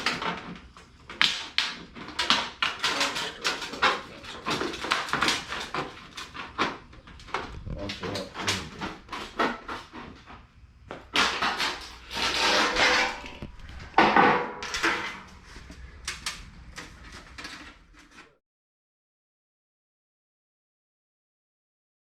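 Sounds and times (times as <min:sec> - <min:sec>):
hard objects knocking and clattering: 0:00.0 - 0:18.4
rasping scraping noise: 0:11.1 - 0:18.4.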